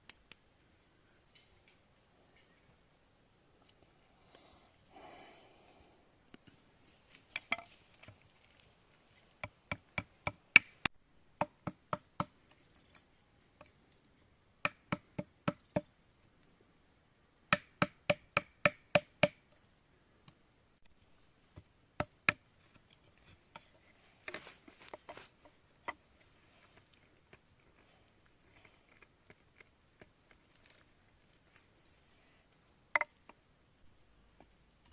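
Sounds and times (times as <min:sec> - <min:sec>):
soft rustle: 0:06.4 - 0:09.4, 0:22.6 - 0:32.4.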